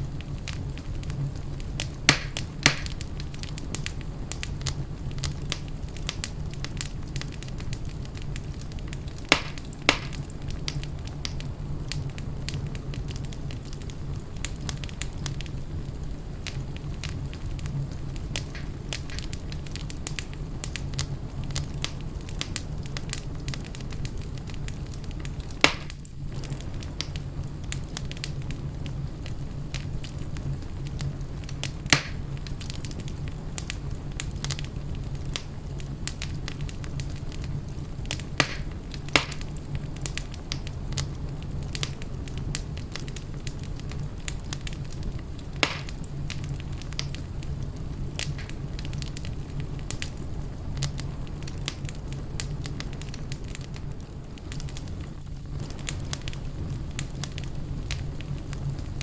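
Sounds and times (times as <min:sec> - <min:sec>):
fire crackling in fireplace: 0:00.0 - 0:59.0.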